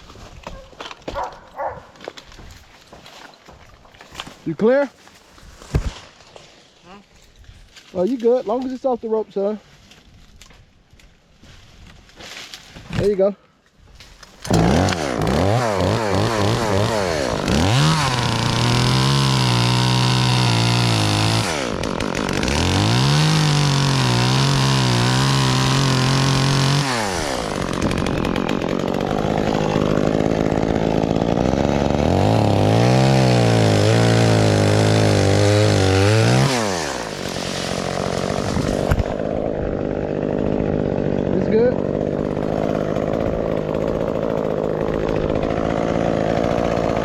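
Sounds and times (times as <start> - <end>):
chainsaw engine revving: 14.4 - 47.0.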